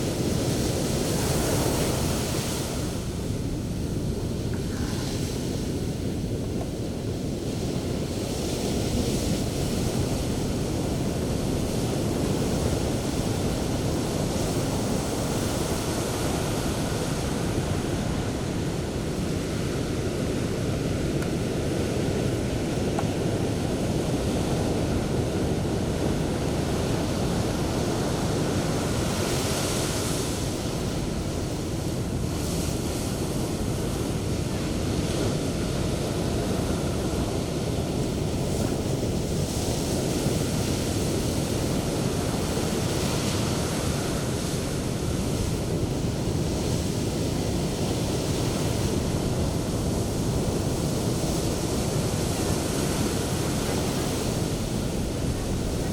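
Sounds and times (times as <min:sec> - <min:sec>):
sea surf breaking on beach: 0:00.0 - 0:55.9
wind rumbling on microphone: 0:00.0 - 0:55.9.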